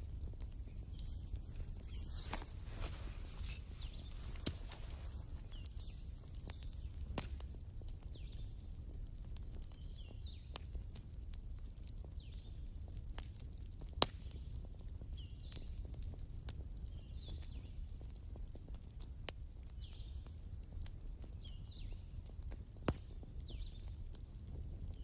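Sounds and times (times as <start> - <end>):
wood fire crackling: 0.0 - 25.0
sharp pops: 1.9 - 5.2.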